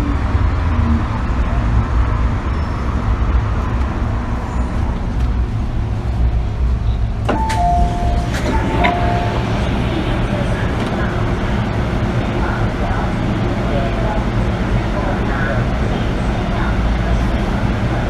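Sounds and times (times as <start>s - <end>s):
train interior rumble: 0.0s - 18.0s
descending two-note chime: 7.4s - 9.5s.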